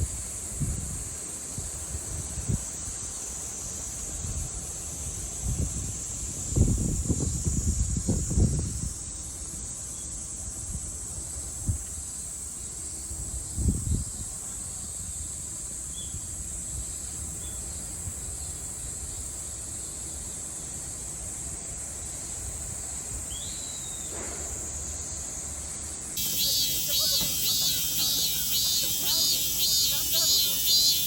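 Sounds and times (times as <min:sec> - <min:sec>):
cicadas droning: 0:00.0 - 0:31.0
rising chirp: 0:26.2 - 0:31.0.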